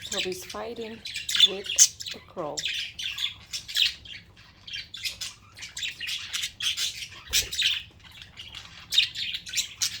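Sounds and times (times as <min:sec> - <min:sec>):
budgerigars squawking and chirping: 0:00.0 - 0:10.0.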